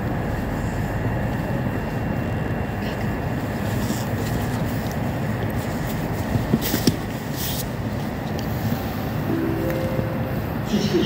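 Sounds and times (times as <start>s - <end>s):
distant train rumbling: 8.9s - 11.0s.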